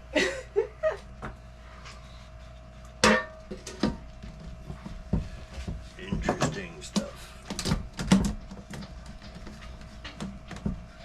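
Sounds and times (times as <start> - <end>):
low background hum: 0.0 - 11.0
objects knocking and clicking: 3.2 - 10.9.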